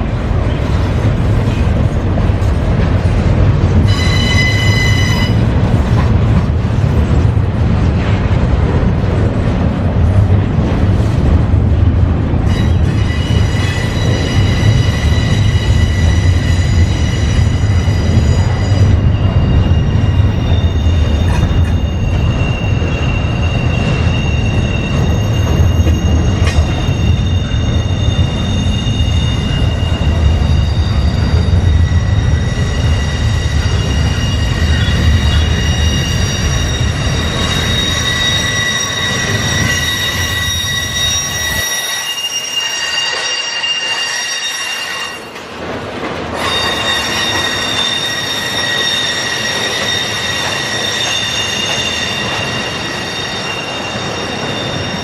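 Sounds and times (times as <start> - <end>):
train wheels rumbling on rail: 0.0 - 55.0
high-pitched wheel squeals: 3.9 - 5.4, 12.5 - 45.4, 46.4 - 55.0.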